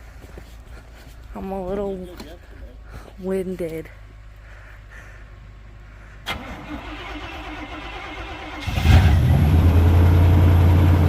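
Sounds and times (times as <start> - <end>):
vehicle engine cranking and idling: 6.2 - 11.0.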